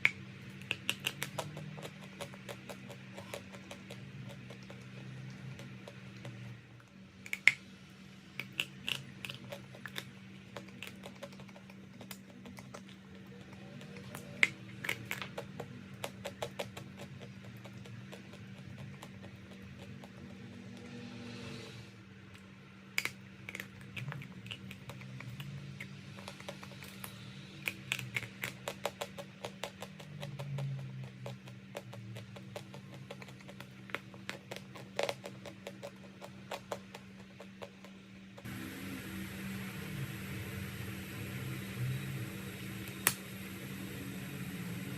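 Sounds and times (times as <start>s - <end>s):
low hum: 38.0s - 44.9s.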